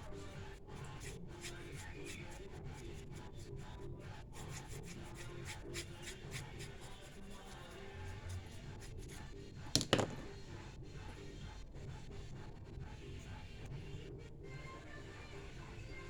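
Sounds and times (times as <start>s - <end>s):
scratchy drawing strokes: 0.0s - 9.4s.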